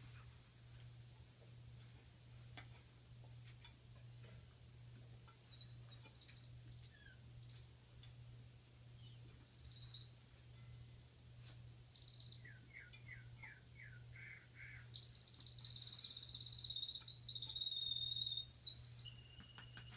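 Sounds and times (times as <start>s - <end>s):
bird singing trilled phrases: 5.4s - 7.7s, 9.0s - 19.9s.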